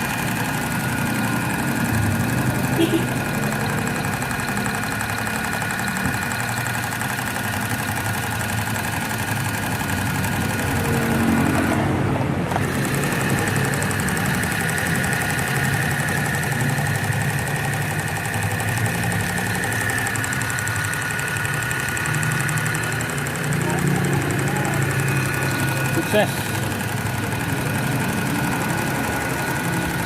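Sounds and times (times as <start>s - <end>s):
sewing machine motor whining: 0.0s - 30.0s.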